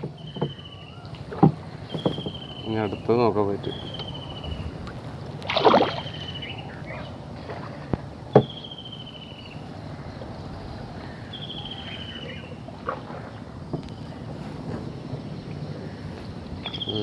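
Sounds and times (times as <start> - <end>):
bird trilling: 16.6 - 17.0.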